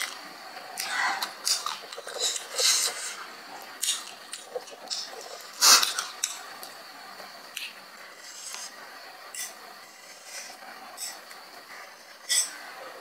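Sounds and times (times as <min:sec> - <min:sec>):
person chewing noodles: 0:00.0 - 0:06.7.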